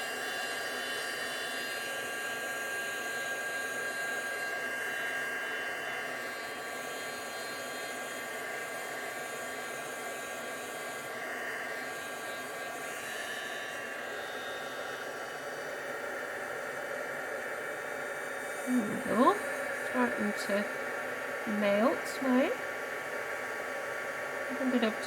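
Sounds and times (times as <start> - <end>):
heat tool fan hiss and whine: 0.0 - 25.0.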